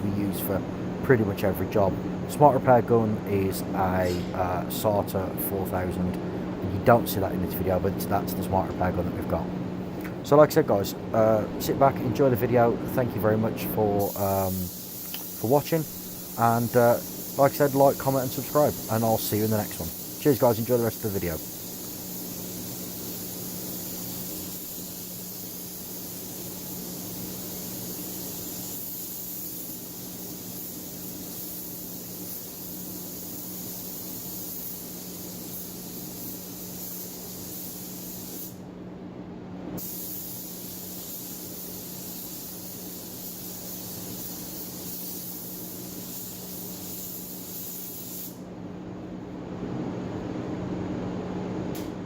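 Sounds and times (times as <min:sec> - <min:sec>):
steady low hum: 0:00.0 - 0:52.0
spray gun hissing: 0:13.8 - 0:38.6, 0:39.8 - 0:48.5.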